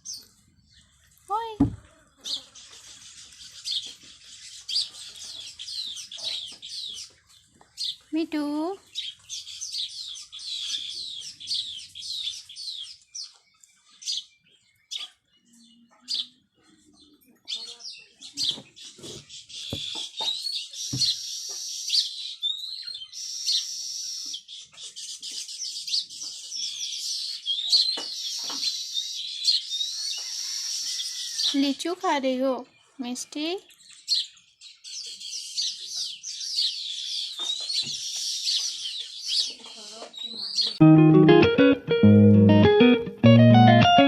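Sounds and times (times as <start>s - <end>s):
soft knocks: 1.6s - 1.8s, 20.9s - 21.1s.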